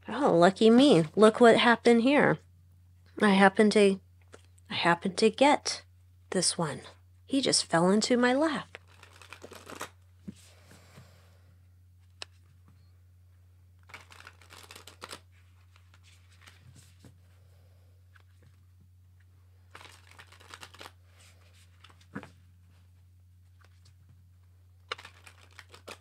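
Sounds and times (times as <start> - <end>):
cards rustling: 8.7 - 10.5, 13.8 - 17.2, 19.6 - 22.3, 24.8 - 26.0.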